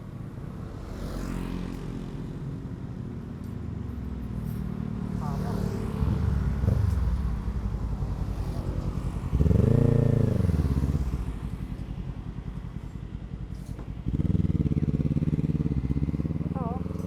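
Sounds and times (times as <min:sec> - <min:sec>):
motorcycle engine revving: 0:05.0 - 0:17.0.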